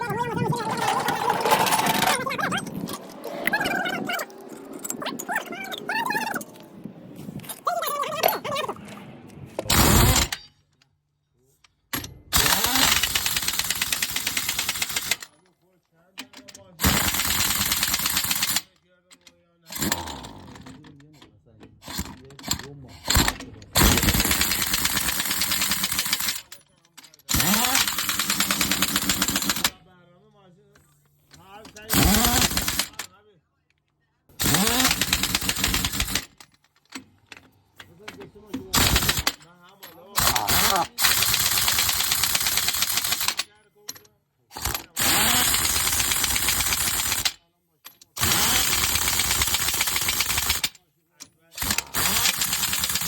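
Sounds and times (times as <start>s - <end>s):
pneumatic impact wrench hammering: 9.6s - 10.5s, 12.3s - 15.2s, 16.8s - 18.6s, 19.7s - 20.7s, 21.8s - 26.5s, 27.3s - 29.7s, 31.8s - 33.1s, 34.4s - 36.4s, 38.6s - 39.4s, 40.2s - 43.4s, 44.5s - 47.4s, 48.0s - 50.7s, 51.6s - 53.0s.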